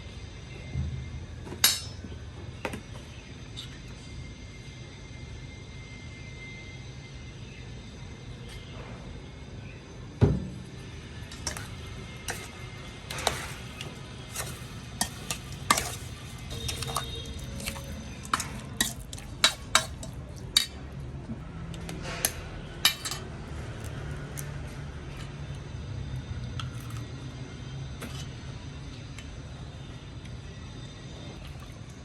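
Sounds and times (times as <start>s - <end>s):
steady low hum: 0.0s - 32.0s
utensils clinking on dishes: 1.6s - 2.0s, 11.3s - 21.0s, 21.8s - 23.9s.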